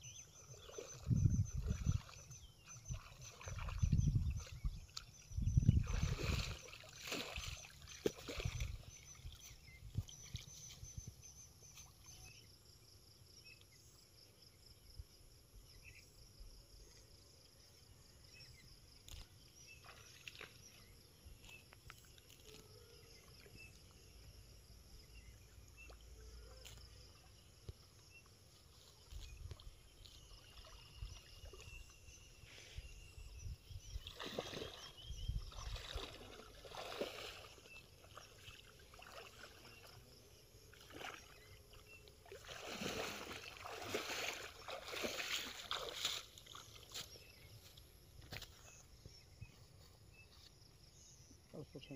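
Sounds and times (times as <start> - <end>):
water sounds: 0.0 - 12.3, 19.0 - 47.8.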